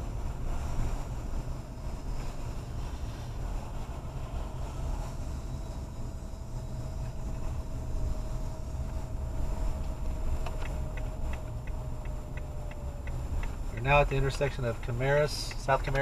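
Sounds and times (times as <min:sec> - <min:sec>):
car driving rumble in cabin: 0:00.0 - 0:16.0
turn signal ticking: 0:08.8 - 0:16.0.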